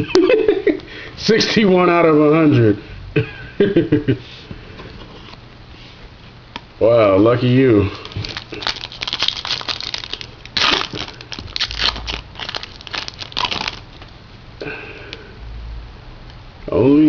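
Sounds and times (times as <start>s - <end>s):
wrapper crinkling and crackling: 8.0s - 14.1s.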